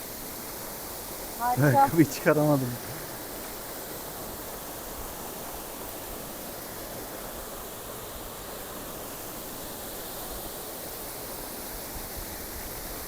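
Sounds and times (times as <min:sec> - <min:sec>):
waterfall rushing: 0:01.4 - 0:03.2.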